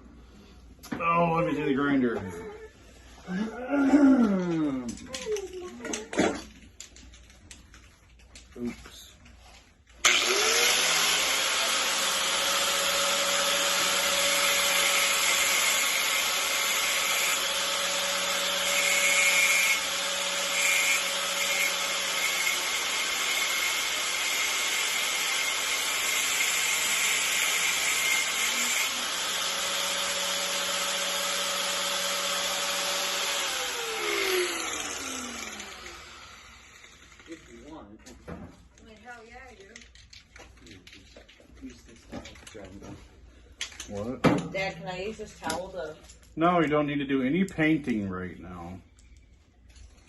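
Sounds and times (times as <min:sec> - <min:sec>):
electric grinder running: 0:10.0 - 0:37.8.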